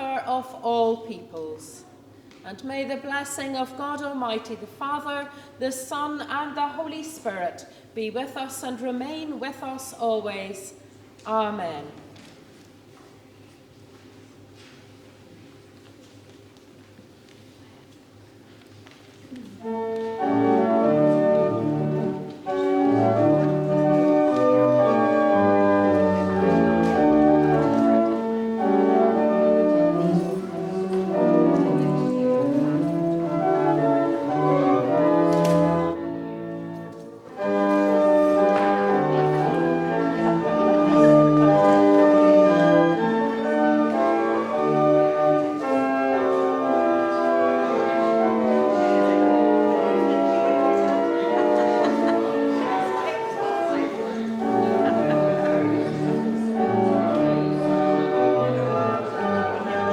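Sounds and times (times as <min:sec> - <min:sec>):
pipe organ playing chords: 0:19.6 - 0:59.9.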